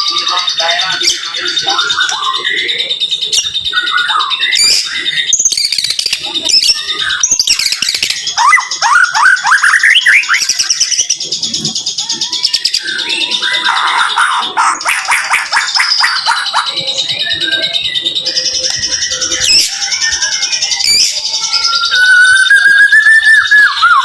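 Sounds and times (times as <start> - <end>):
bird singing whistles and chatter: 0.0 - 24.0.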